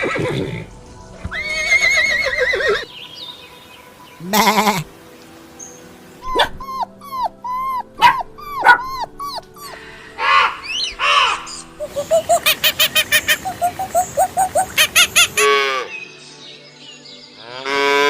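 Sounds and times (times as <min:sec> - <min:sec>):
dog whimpering and yipping: 0:06.2 - 0:09.8
dog yelping: 0:06.2 - 0:11.5.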